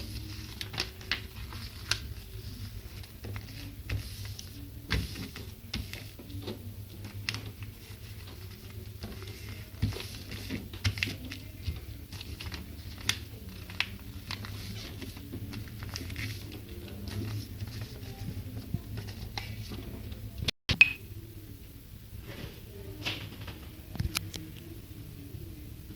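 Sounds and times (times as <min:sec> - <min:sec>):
paper rustling and folding: 0:00.0 - 0:20.0.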